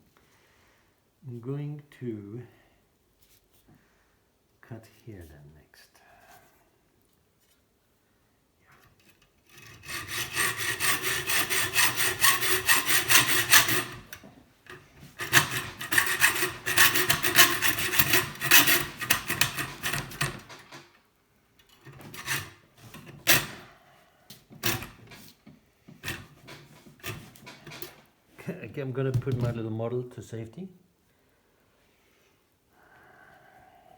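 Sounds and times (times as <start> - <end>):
hand saw cutting metal: 8.9 - 20.8, 21.7 - 23.7, 24.6 - 25.2, 26.0 - 28.0.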